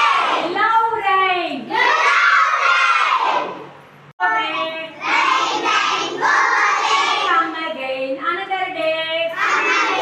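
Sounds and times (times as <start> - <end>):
young children singing in chorus: 9.4 - 10.0.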